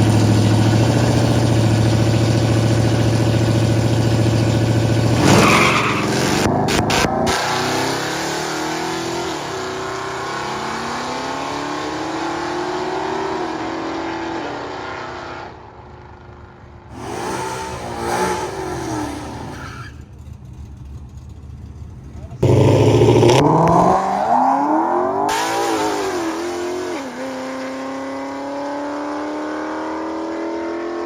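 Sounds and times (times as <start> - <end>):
car engine accelerating: 0.0 - 16.3, 16.9 - 31.0
engine noise surge: 16.9 - 20.9, 22.3 - 26.8.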